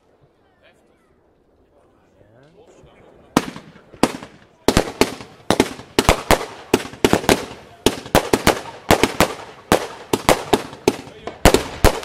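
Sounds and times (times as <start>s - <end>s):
fireworks bangs: 3.2s - 12.0s.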